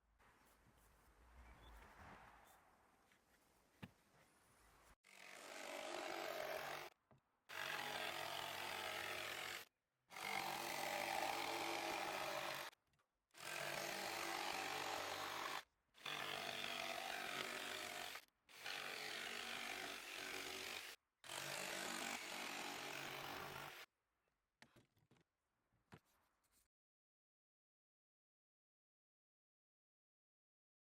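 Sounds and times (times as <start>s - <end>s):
jigsaw cutting wood: 5.1s - 12.8s, 13.4s - 23.9s.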